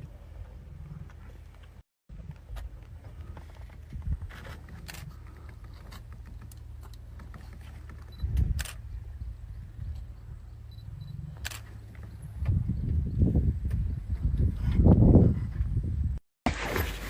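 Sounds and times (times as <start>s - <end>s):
steady low rumble: 8.1s - 16.2s.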